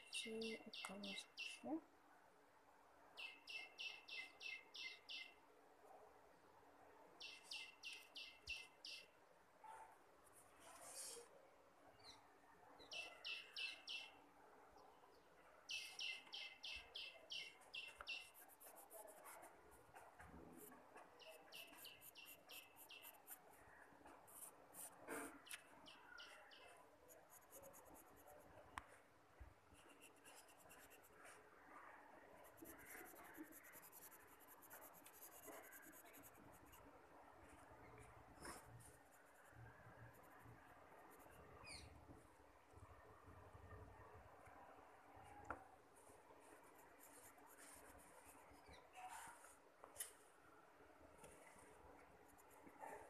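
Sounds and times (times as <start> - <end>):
small bird chirping: 0.0 - 1.8, 3.2 - 5.4, 7.2 - 9.2, 12.0 - 14.2, 15.7 - 19.1, 21.0 - 23.8, 41.2 - 42.0
pencil scratching on paper: 18.0 - 25.4, 27.1 - 28.5, 29.8 - 31.4, 32.4 - 36.9, 52.2 - 53.0.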